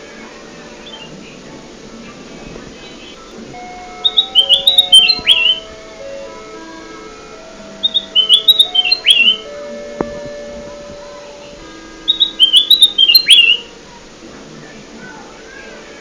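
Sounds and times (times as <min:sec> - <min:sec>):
bird whistling song: 0:00.8 - 0:01.1, 0:02.8 - 0:05.7, 0:07.8 - 0:09.5, 0:12.0 - 0:13.7.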